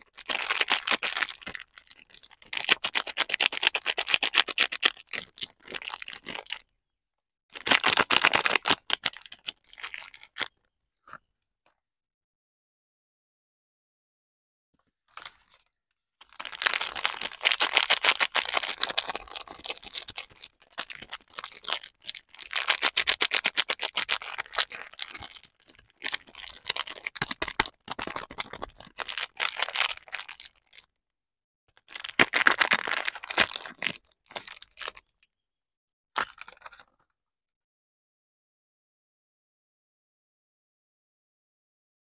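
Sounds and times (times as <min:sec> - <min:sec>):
wrapper crinkling and tearing: 0:00.0 - 0:06.6, 0:07.6 - 0:10.5, 0:16.3 - 0:30.8, 0:31.9 - 0:35.0, 0:36.2 - 0:36.8.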